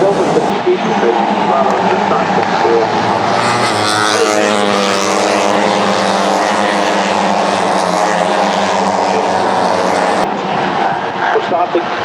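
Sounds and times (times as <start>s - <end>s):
motorcycle engine at high revs: 1.6s - 10.3s.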